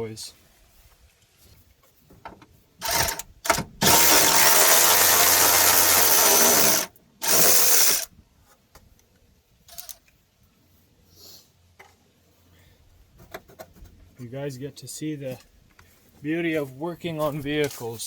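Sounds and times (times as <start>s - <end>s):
electric ratchet whirring: 2.8s - 8.1s.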